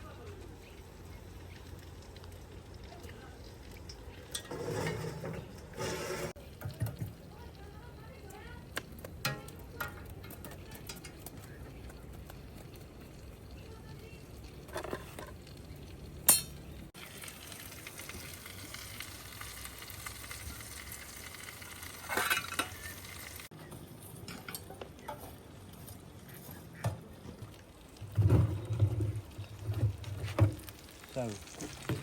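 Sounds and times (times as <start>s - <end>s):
food sizzling: 0.0s - 32.0s
utensils clinking on cookware: 3.8s - 7.1s, 9.2s - 11.5s, 16.2s - 16.8s, 21.3s - 25.4s.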